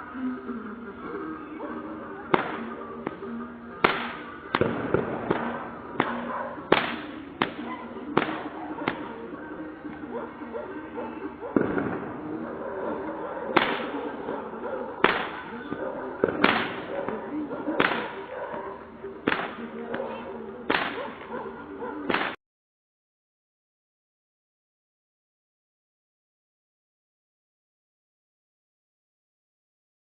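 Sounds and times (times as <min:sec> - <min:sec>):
background music: 0:00.0 - 0:22.4
sharp cracks: 0:03.8 - 0:09.1, 0:13.6 - 0:14.0, 0:15.0 - 0:15.4, 0:16.2 - 0:16.9, 0:17.8 - 0:18.2, 0:19.3 - 0:19.7, 0:20.7 - 0:21.3, 0:22.1 - 0:22.4.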